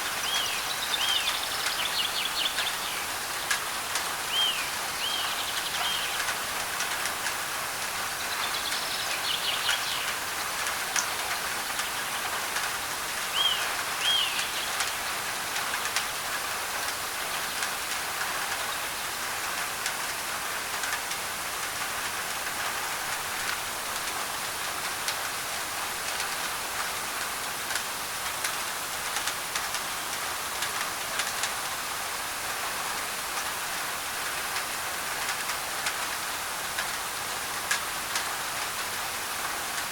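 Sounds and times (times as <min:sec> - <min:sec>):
rain on a tin roof: 0:00.0 - 0:39.9
bird chirping: 0:00.2 - 0:03.0, 0:04.3 - 0:06.2, 0:13.3 - 0:14.8.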